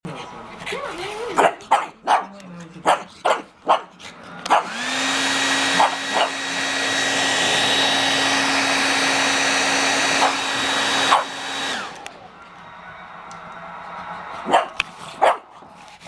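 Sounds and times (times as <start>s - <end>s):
dog barking: 0.7s - 4.8s, 5.7s - 6.3s, 10.1s - 10.4s, 11.0s - 11.4s, 14.4s - 15.7s
hair dryer whining: 4.0s - 16.0s.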